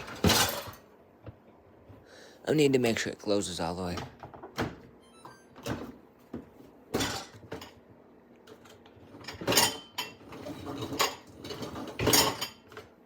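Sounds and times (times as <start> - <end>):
dishes clattering in dishwasher: 0.0 - 0.9, 6.9 - 7.8, 8.5 - 12.9.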